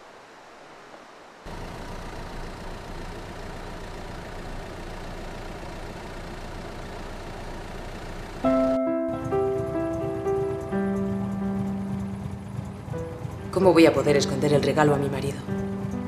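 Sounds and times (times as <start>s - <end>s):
car engine running: 1.5s - 16.0s.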